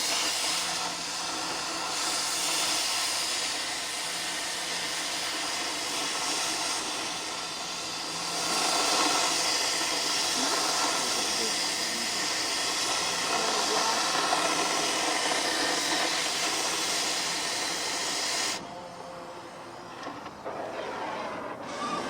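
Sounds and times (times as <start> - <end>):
gas torch flame hissing: 0.0 - 18.6
shop noise: 18.6 - 22.0.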